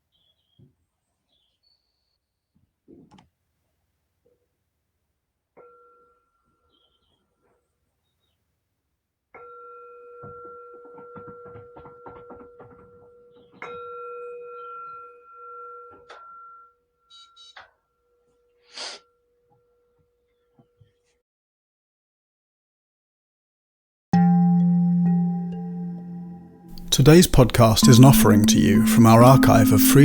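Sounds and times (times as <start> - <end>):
meditation bell ringing: 24.2 - 30.0.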